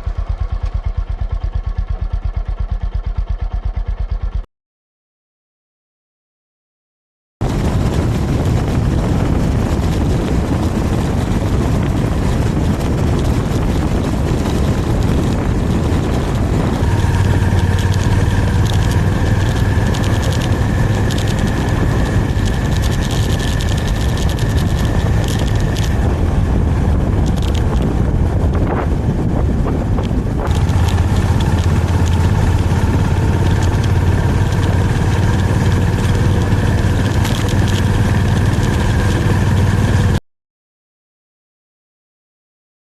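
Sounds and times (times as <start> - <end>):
motorcycle engine running: 0.0 - 4.5, 7.4 - 40.2
heavy wind rush: 7.4 - 40.2.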